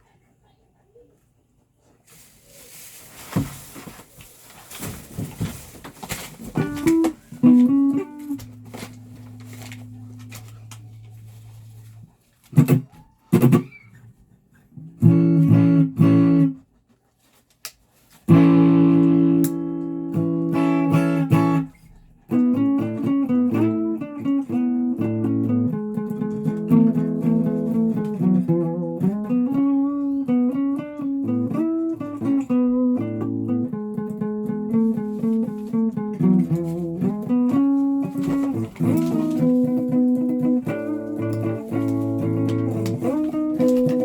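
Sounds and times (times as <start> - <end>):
guitar strummed: 6.4 - 13.8, 14.8 - 16.6, 18.3 - 44.0.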